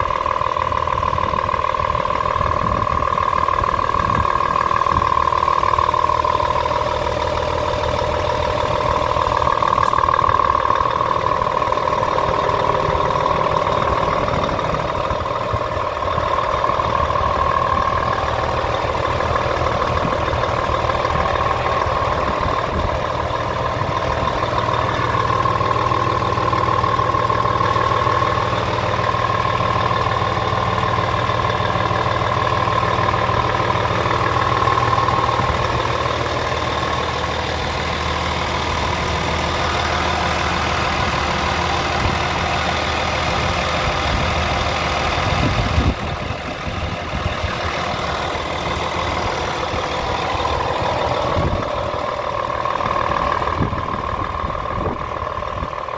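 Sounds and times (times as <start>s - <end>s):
diesel truck engine idling: 0.0s - 55.9s.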